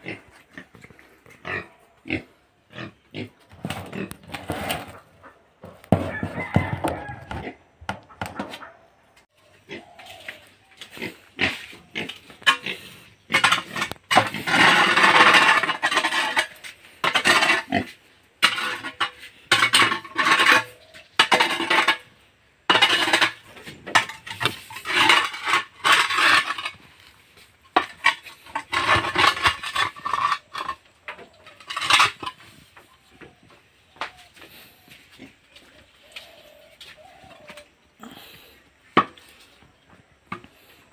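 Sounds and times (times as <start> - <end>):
pigs grunting: 0.0 - 5.6, 9.4 - 18.0
spade scraping a floor: 3.2 - 5.1, 10.1 - 33.0.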